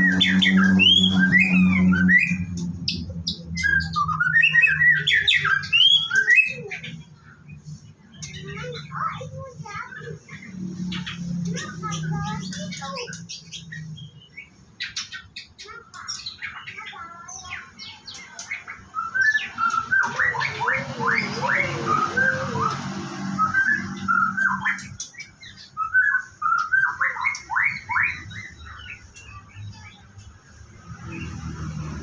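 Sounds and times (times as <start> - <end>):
bird singing whistled notes: 0.0 - 6.8, 18.3 - 30.0.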